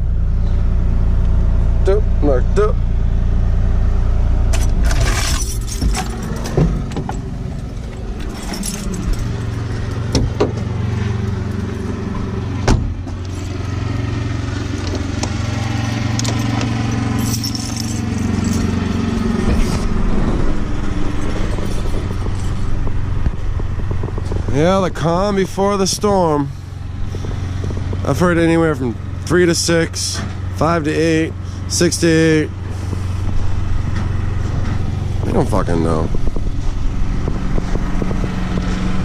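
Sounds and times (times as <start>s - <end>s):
diesel engine idling: 0.0s - 39.0s
metallic rattles: 4.5s - 11.9s, 14.6s - 24.7s.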